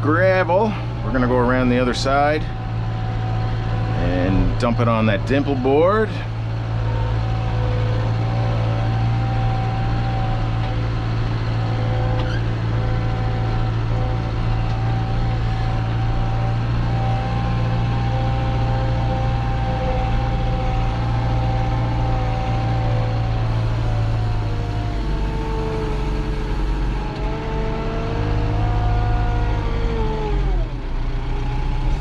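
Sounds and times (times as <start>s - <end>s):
steady whine: 0.0s - 16.7s, 23.0s - 27.4s
diesel engine running: 0.0s - 32.0s.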